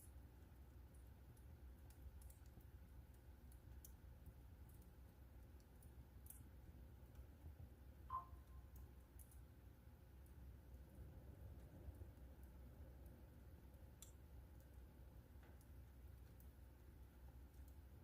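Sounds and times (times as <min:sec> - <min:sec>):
wood fire crackling: 0:00.0 - 0:18.0
low fire rumble: 0:08.8 - 0:18.0.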